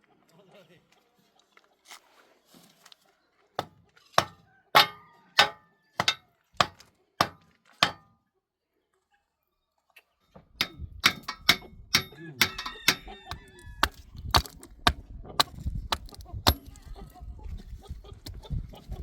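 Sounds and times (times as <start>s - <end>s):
tool striking wood: 3.6s - 8.1s, 10.6s - 16.8s.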